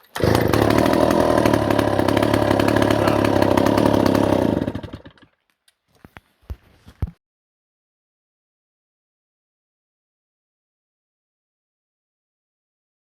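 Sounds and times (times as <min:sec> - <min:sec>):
chainsaw engine running: 0:00.0 - 0:05.3.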